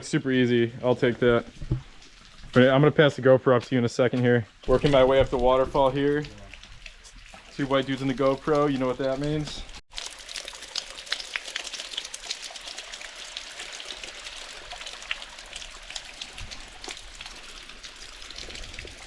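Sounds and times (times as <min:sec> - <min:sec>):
waterfall splashing over rocks: 0:07.7 - 0:19.0.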